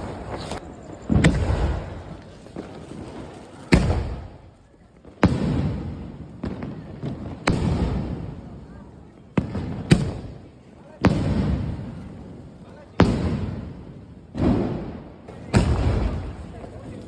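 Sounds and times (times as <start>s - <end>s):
faint firework pops: 0.3s - 8.5s, 9.3s - 12.1s, 12.9s - 17.0s
firework bangs with rumble: 1.1s - 4.4s, 5.0s - 8.6s, 9.3s - 10.4s, 11.0s - 16.6s.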